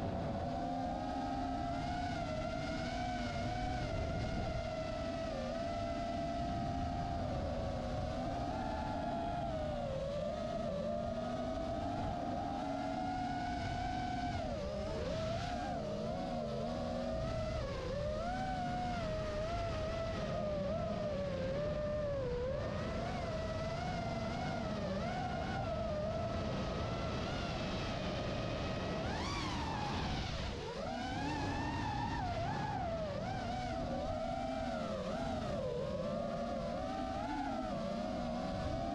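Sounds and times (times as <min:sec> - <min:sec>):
model airplane motor whine: 0:00.0 - 0:38.9.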